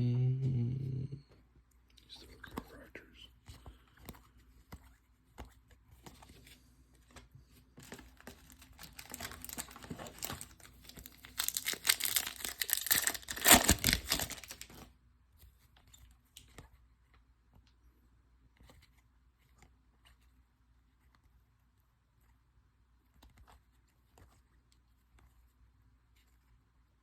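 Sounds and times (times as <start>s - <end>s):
wrapper tearing and crinkling: 7.9s - 14.9s.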